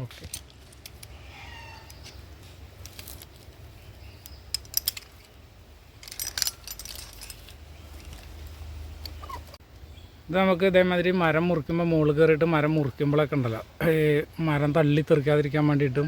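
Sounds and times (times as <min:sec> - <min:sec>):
metal climbing hardware clinking: 0:04.2 - 0:08.4.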